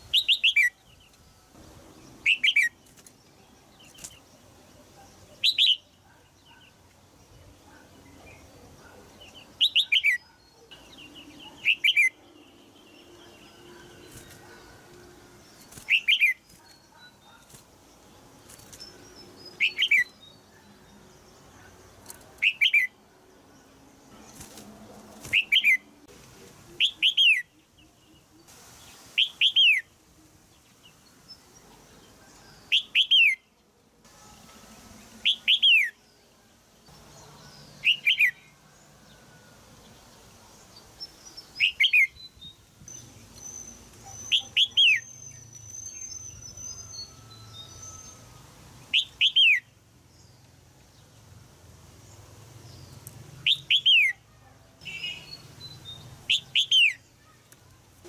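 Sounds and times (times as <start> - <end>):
faint bird twittering: 41.0 - 49.7.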